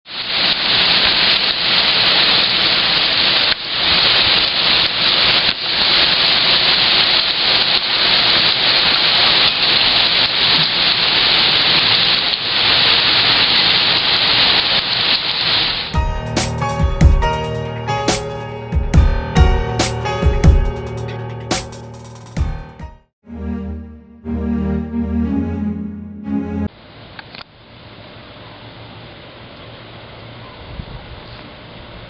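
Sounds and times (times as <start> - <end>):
guitar music: 15.9 - 26.7.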